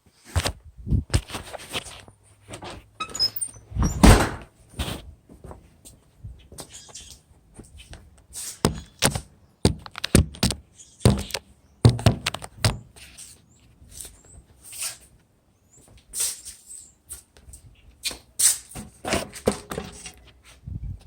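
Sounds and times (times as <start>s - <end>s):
knocks and clunks: 2.6s - 4.5s.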